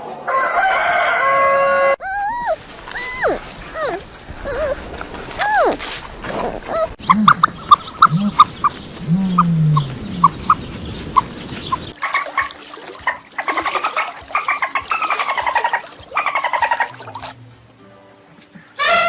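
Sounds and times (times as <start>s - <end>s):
rattling clucking calls: 2.8s - 17.1s.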